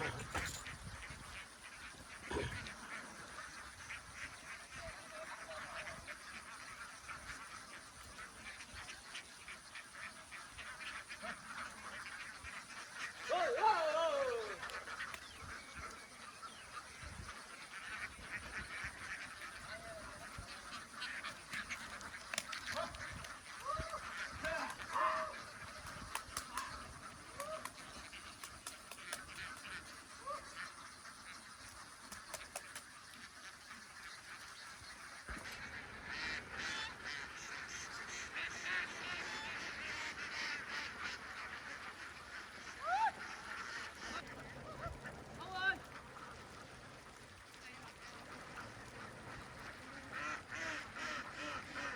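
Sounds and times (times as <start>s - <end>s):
ducks quacking: 0.0s - 51.9s
splashing in shallow water: 13.0s - 35.6s.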